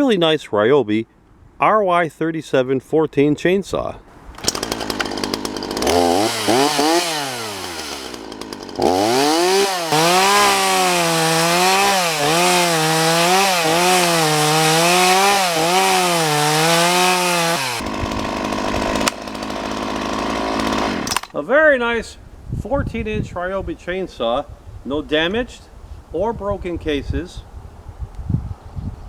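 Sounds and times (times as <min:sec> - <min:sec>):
chainsaw revving and cutting wood: 0:04.1 - 0:21.4.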